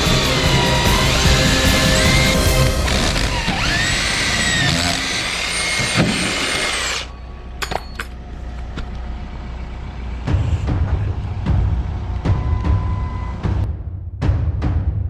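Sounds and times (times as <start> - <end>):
power drill whining: 0.0 - 7.2.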